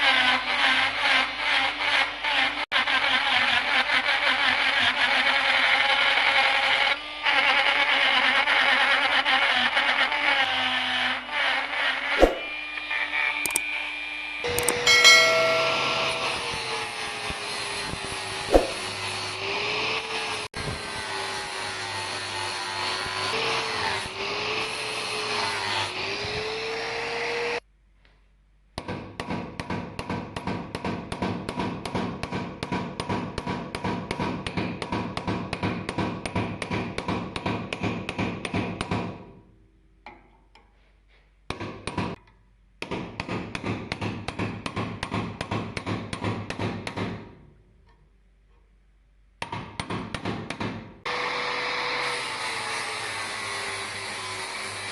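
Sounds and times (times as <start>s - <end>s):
power tool working on metal: 0.0s - 27.6s, 51.1s - 54.9s
rapid hammer strokes: 12.2s - 12.6s, 18.5s - 18.9s.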